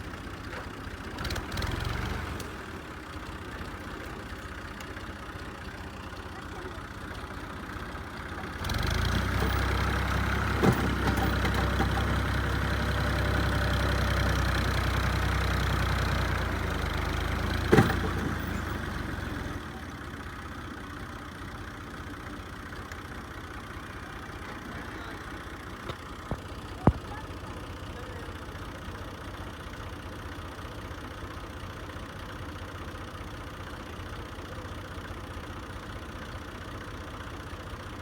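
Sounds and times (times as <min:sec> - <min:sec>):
tractor diesel engine drone: 0:00.0 - 0:38.0.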